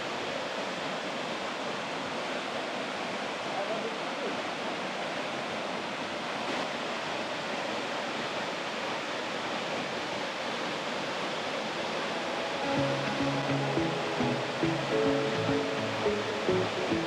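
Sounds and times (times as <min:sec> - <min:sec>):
waterfall rushing: 0:11.0 - 0:17.0.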